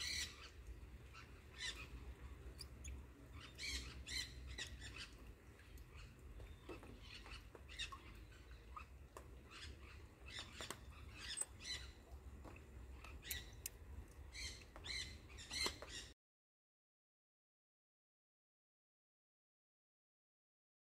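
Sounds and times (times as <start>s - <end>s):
faint high bird calls: 0.0s - 12.1s, 14.3s - 16.2s.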